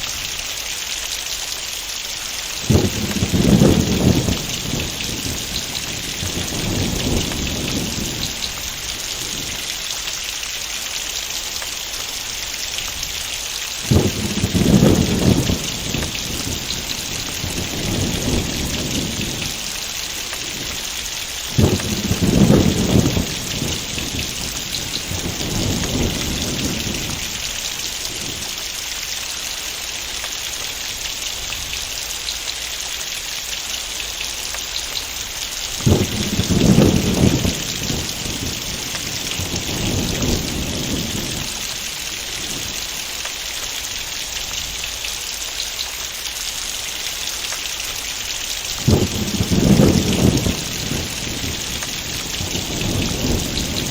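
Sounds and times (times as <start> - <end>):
heavy rain: 0.0 - 53.9
faint thunder rumbles: 2.2 - 33.1, 34.0 - 53.9
thunderclaps: 2.6 - 9.7, 13.8 - 28.6, 35.8 - 43.0, 48.7 - 53.9.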